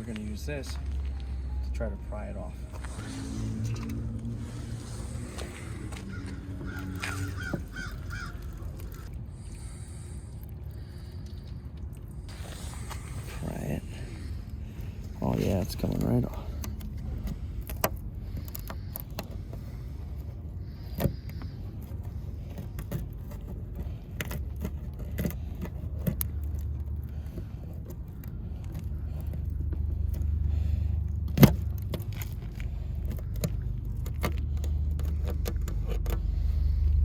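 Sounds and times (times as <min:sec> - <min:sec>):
low rumble: 0:00.0 - 0:20.6, 0:26.4 - 0:37.0
pry tool clicks and scrapes: 0:16.6 - 0:30.3, 0:31.1 - 0:36.7.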